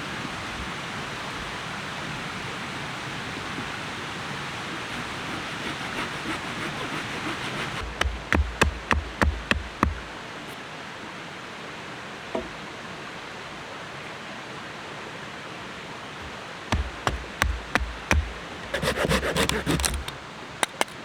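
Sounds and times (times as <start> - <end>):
sharp knocks: 7.8 - 10.1, 12.4 - 12.6, 16.2 - 20.9.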